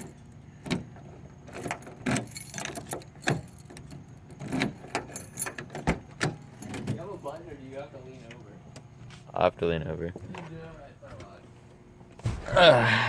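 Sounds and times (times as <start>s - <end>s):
keys jangling: 1.5s - 6.0s.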